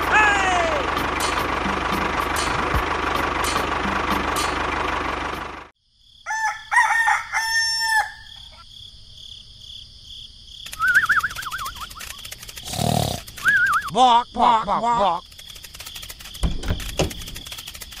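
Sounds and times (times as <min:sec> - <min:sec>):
rooster crowing: 0:06.2 - 0:08.6.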